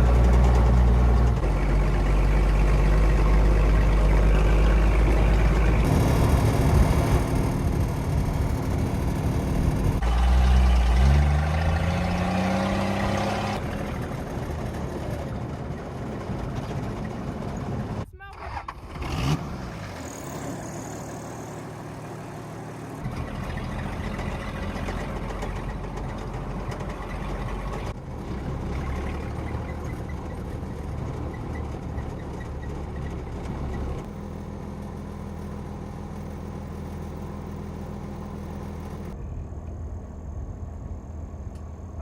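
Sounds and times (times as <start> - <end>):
vehicle engine droning: 0.0 - 18.0, 18.6 - 42.0.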